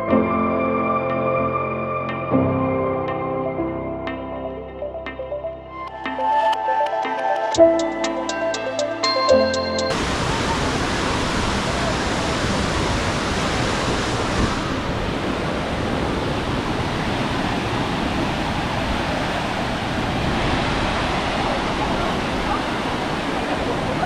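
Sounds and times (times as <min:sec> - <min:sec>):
falling water rushing: 0:09.9 - 0:24.0.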